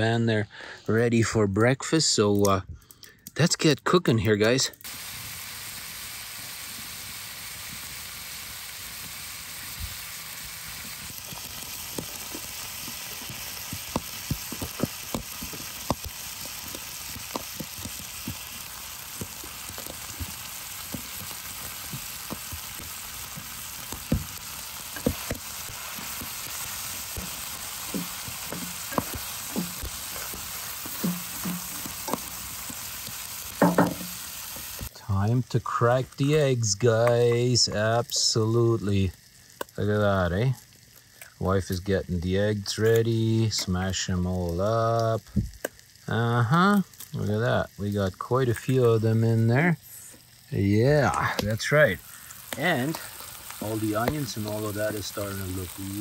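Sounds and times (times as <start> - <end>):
bacon sizzling in a frying pan: 3.6 - 56.0
spatula tapping a pan: 31.0 - 32.2, 33.6 - 34.1.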